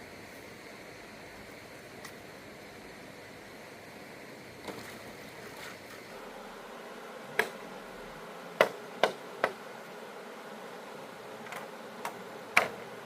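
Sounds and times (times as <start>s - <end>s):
steady hiss: 0.0s - 13.0s
sharp knocks: 8.6s - 9.6s.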